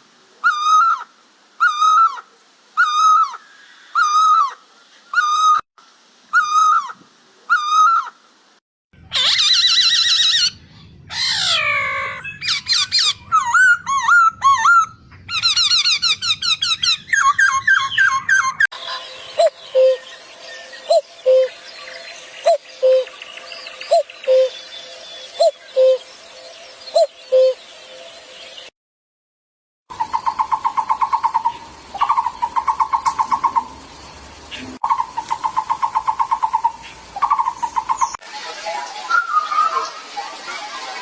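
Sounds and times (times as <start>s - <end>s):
harsh bird calls: 9.0s - 26.1s
bird whistles: 9.2s - 10.6s, 11.2s - 18.7s.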